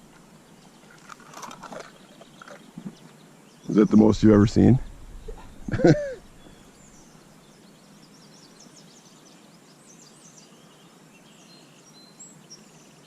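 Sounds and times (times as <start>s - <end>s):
songbirds chirping: 0.0s - 13.0s
outdoor hiss: 3.0s - 13.0s
person speaking: 3.7s - 6.4s.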